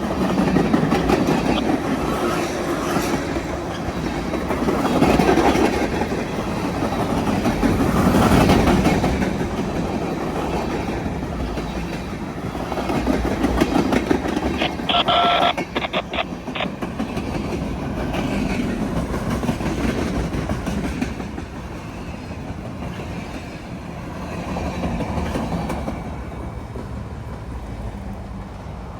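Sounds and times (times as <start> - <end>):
train wheels clattering on rails: 0.0 - 14.5, 16.8 - 27.6
sharp clicks: 14.6 - 16.7
short pitched tone: 14.6 - 16.7.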